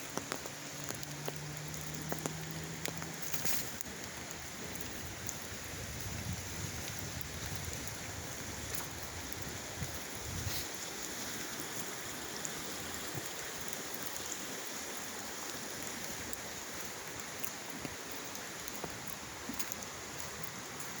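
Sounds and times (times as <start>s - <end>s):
flowing creek water: 0.0s - 21.0s
rain: 0.0s - 21.0s.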